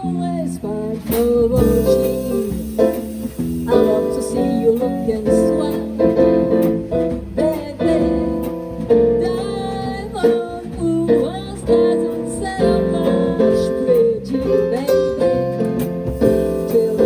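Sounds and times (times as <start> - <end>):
plucked acoustic instruments: 0.0 - 17.0
person singing: 9.2 - 15.4, 16.2 - 17.0.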